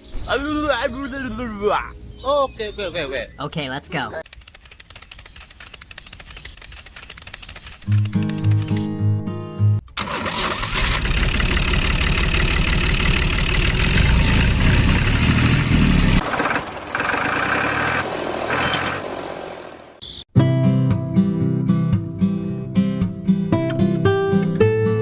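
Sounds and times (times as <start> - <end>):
guitar music: 7.9 - 9.8, 20.4 - 25.0
loud mechanical engine noise: 10.8 - 20.0.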